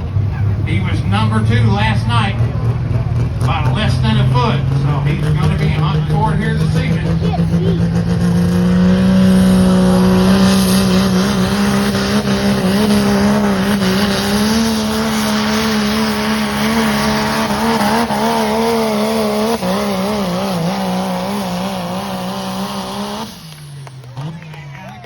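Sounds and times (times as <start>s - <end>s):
truck engine at high revs: 0.0s - 25.0s.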